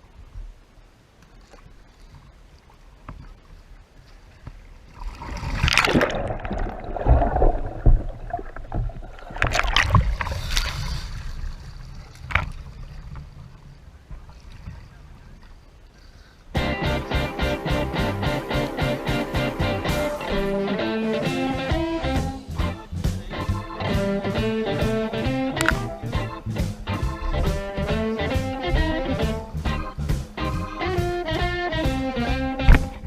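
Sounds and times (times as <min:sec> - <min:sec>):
quiet water: 0:00.0 - 0:33.0
paddle splashing in river water: 0:00.6 - 0:16.6, 0:25.5 - 0:27.8.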